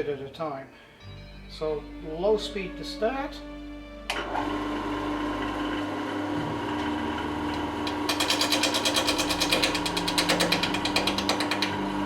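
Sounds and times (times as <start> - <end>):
lathe motor humming: 4.1 - 12.0
chisel ticking on spinning wood: 7.8 - 12.0.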